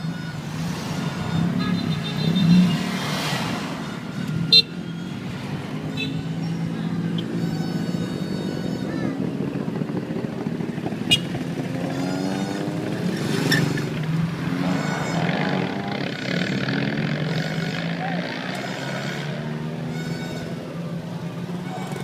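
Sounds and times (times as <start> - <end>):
engine hum: 0.0 - 22.0
people's voices: 14.4 - 22.0.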